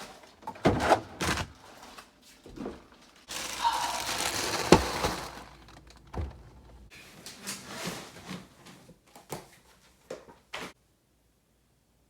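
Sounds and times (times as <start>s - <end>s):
food packages rustling: 0.0s - 8.9s.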